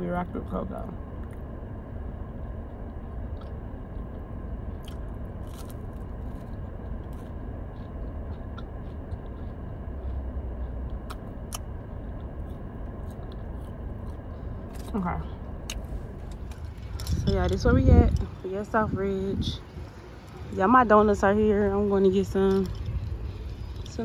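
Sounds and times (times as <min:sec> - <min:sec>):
low hum inside car: 0:00.0 - 0:24.0
person chewing food: 0:02.1 - 0:17.3.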